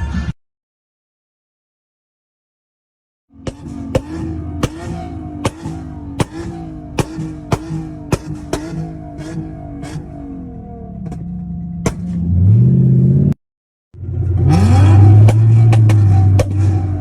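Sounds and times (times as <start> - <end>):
car engine revving: 3.3 - 13.4, 14.0 - 17.0.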